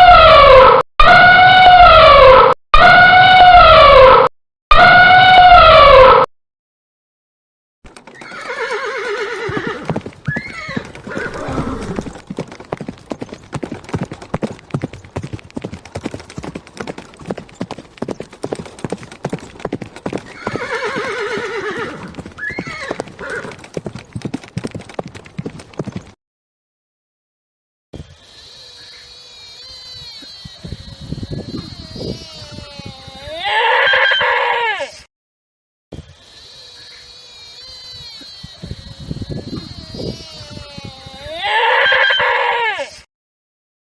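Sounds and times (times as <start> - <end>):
hoofbeats clip-clopping: 7.9 - 26.2
horse neighing: 8.1 - 12.2, 20.3 - 23.6, 28.0 - 35.0, 36.1 - 43.0.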